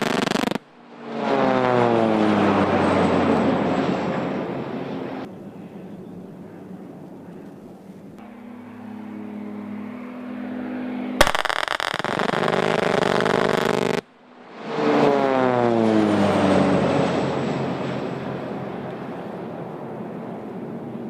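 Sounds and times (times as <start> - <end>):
aircraft engine noise: 0.0 - 21.0
military vehicle engine: 0.0 - 21.0
engine passing by: 0.8 - 5.3, 8.0 - 11.2, 14.2 - 21.0.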